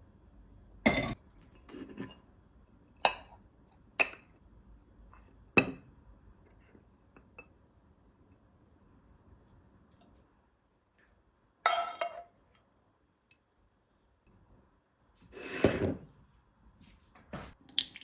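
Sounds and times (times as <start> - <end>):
dishes and glassware clinking: 0.9 - 2.2, 11.7 - 12.4.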